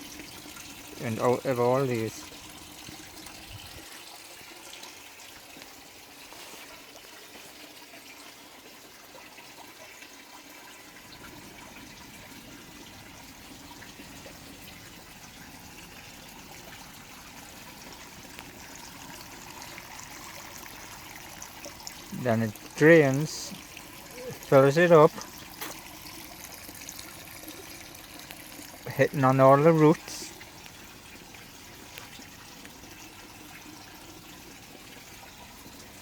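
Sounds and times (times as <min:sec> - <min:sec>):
water trickling and splashing: 0:00.0 - 0:36.0.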